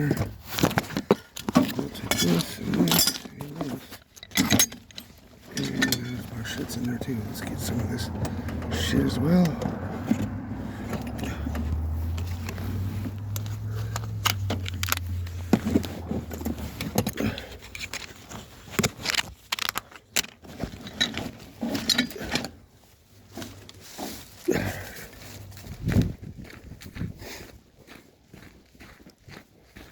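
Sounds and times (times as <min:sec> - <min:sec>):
metal parts clinking: 0:01.4 - 0:07.2, 0:10.9 - 0:22.5.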